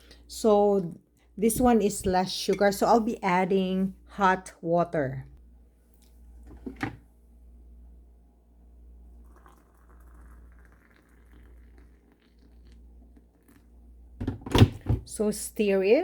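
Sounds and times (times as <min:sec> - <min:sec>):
water pouring into a mug: 0:09.0 - 0:13.8.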